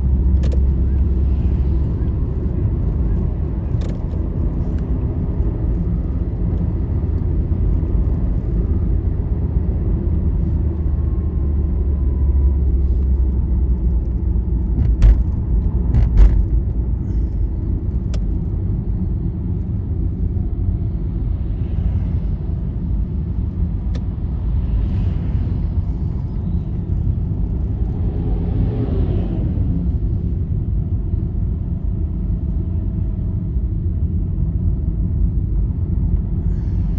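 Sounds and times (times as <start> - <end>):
vehicle road rumble: 0.0 - 36.9.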